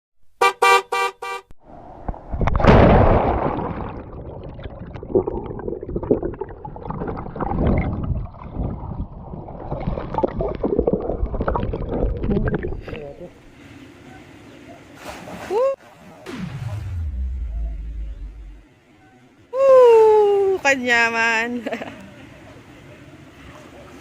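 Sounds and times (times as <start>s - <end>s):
horn toots: 0.4s - 1.6s.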